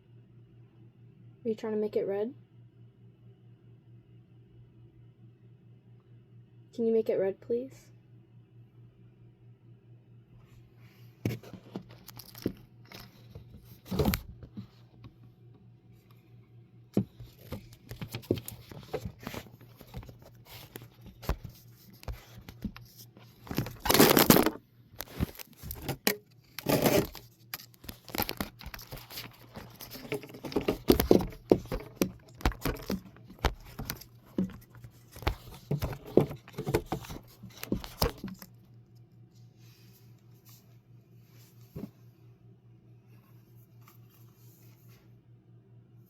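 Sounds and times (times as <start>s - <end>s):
close rustling and crinkling: 17.0s - 38.6s.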